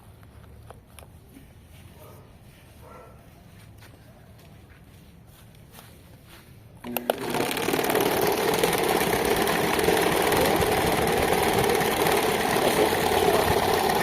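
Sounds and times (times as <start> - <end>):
electric fan humming: 6.8 - 14.0.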